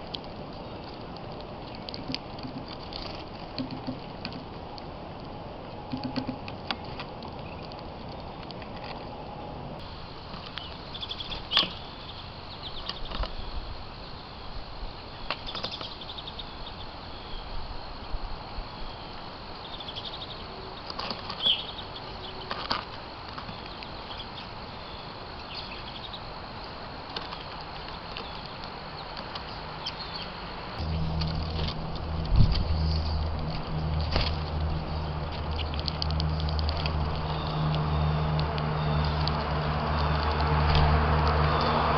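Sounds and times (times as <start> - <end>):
small birds chirping: 5.7 - 41.9
low hum: 29.5 - 41.9.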